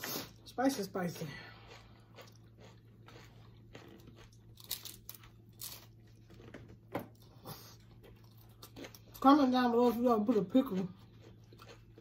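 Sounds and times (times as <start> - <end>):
crunchy bites and chewing: 1.5 - 9.2, 10.8 - 12.0.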